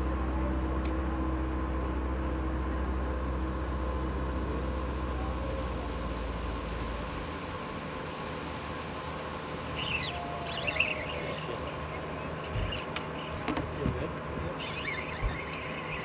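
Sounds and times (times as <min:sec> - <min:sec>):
steady hum: 0:00.0 - 0:16.0
birds chirping: 0:09.7 - 0:13.8, 0:14.5 - 0:16.0
knocks and thumps on boat: 0:12.4 - 0:14.1.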